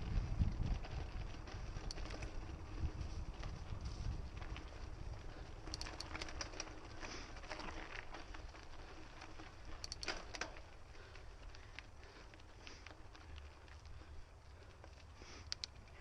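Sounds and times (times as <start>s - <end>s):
wind rumbling on microphone: 0.0s - 9.8s
bike clicks and rattles: 0.0s - 16.0s
bike tyres rolling on dirt: 0.0s - 16.0s.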